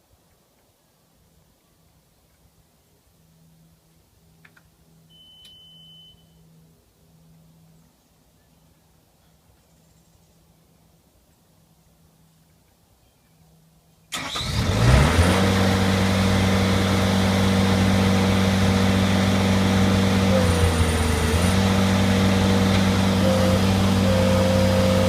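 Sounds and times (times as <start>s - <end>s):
loader engine starting and running: 14.1s - 25.0s.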